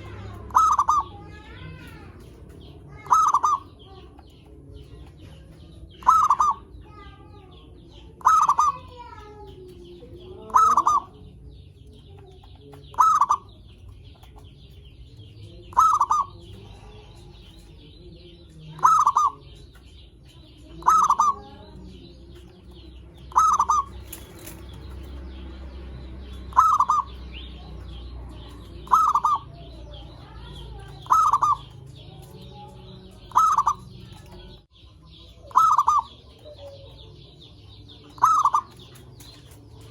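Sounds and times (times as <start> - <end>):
dove cooing: 0.0 - 4.1, 5.9 - 6.8, 8.2 - 9.1, 10.2 - 11.4, 12.8 - 13.6, 15.6 - 17.6, 18.7 - 19.6, 20.6 - 24.7, 26.5 - 34.6, 35.5 - 37.1, 37.8 - 39.9.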